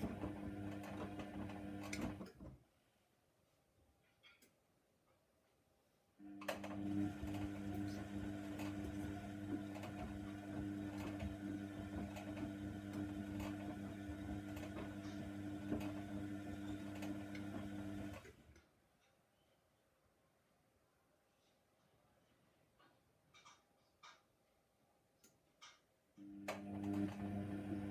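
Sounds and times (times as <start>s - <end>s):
washer dryer humming: 0.0s - 2.4s, 6.3s - 18.3s, 26.3s - 27.9s.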